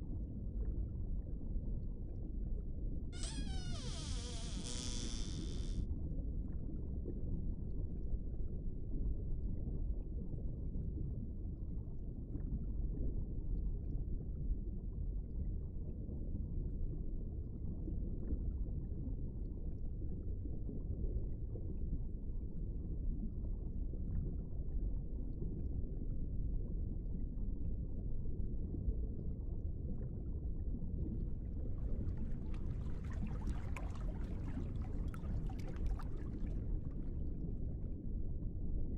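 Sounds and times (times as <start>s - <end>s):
muffled underwater rumble: 0.2s - 5.8s, 15.7s - 38.9s.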